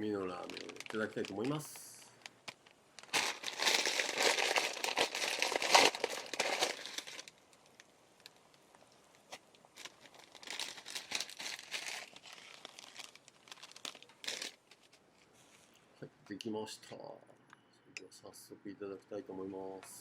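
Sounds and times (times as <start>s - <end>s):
plastic packaging crinkling: 0.0s - 15.4s.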